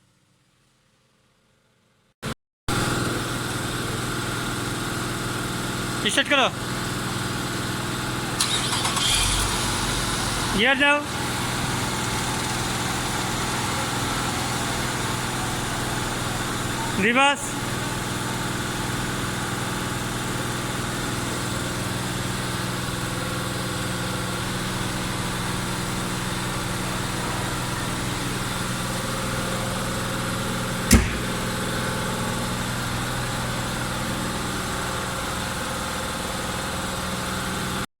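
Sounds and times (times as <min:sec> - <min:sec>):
car engine idling: 0:06.7 - 0:10.6, 0:24.7 - 0:36.6
sharp knock: 0:30.9 - 0:31.7.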